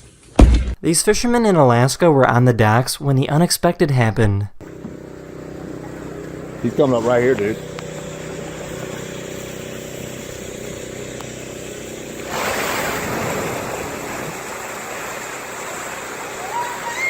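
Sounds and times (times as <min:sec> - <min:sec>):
idling motor hum: 0:04.6 - 0:12.3
water lapping: 0:12.2 - 0:16.8
loud splash of water: 0:12.3 - 0:17.0.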